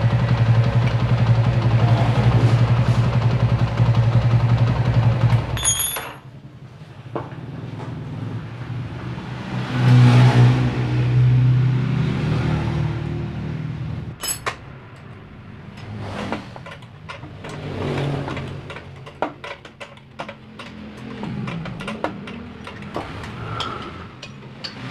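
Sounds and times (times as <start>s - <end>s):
motorcycle engine running: 0.0s - 8.8s
sharp clicks and knocks: 14.2s - 24.9s.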